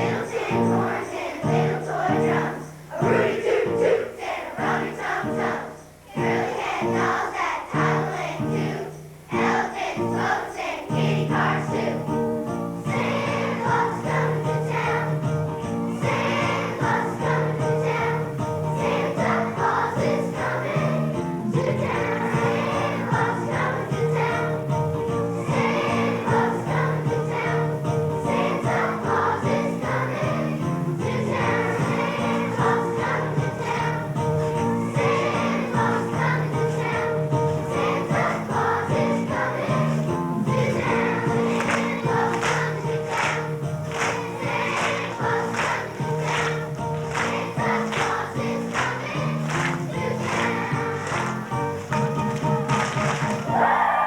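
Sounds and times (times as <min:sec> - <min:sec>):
children's choir singing: 0:00.0 - 0:54.0
instrumental accompaniment: 0:11.0 - 0:53.8.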